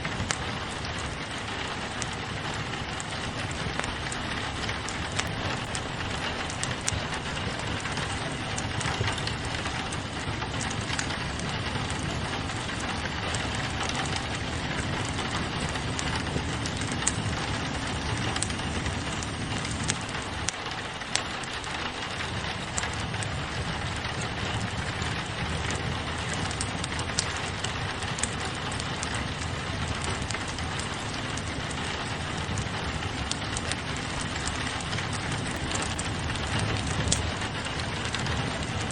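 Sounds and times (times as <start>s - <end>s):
rain on a window: 0.0s - 38.9s
wood fire crackling: 0.0s - 38.9s.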